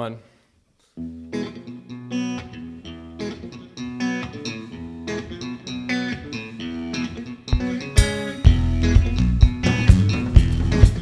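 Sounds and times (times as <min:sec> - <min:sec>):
guitar picking melody: 0:01.0 - 0:11.0
bass: 0:06.6 - 0:11.0
full band playing: 0:07.5 - 0:11.0
drum hits: 0:07.6 - 0:11.0.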